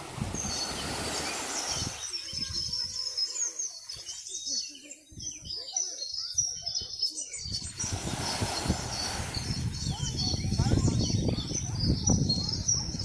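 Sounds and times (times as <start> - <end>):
wind buffeting microphone: 0.0 - 3.2, 6.3 - 13.0
small birds chirping: 0.0 - 13.0.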